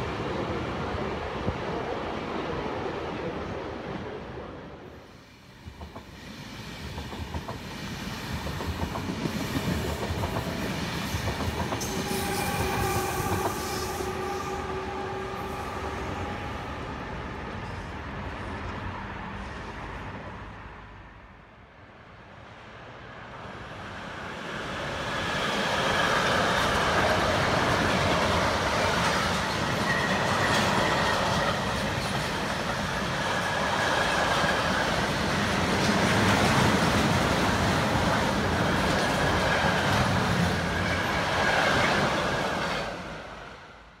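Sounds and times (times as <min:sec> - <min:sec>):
train wheels clacking on track: 0:05.6 - 0:15.4, 0:25.6 - 0:43.0.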